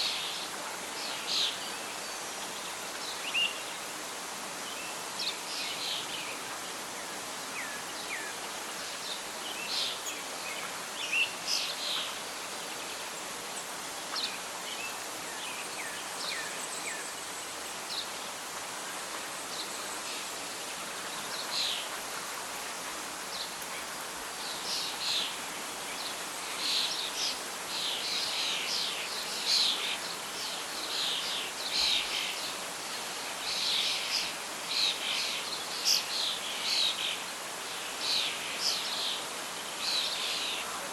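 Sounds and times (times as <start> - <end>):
rustling leaves: 0.0 - 40.9
wind hiss: 0.0 - 40.9.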